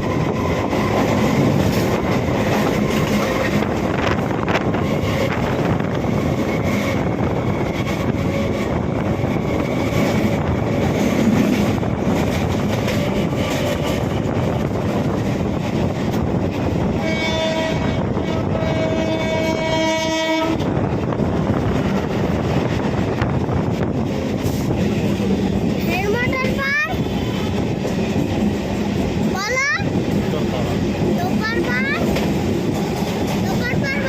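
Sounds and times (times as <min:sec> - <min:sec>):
electric train running: 0:00.0 - 0:34.0
train horn: 0:16.9 - 0:20.7.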